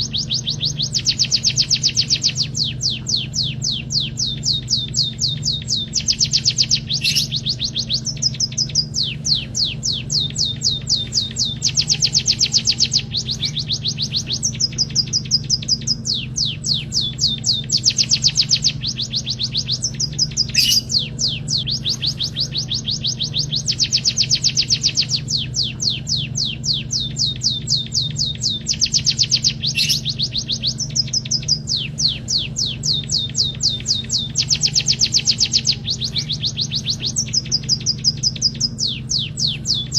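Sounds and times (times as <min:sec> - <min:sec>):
bird singing rattling trills: 0:00.0 - 0:39.9
steady low hum: 0:00.0 - 0:39.9.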